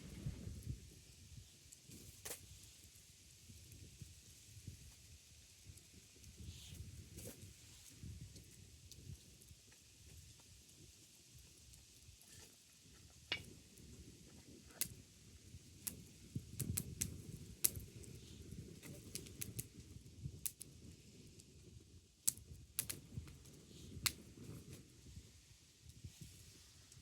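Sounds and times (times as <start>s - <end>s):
wood fire crackling: 0.0s - 0.8s, 13.3s - 27.0s.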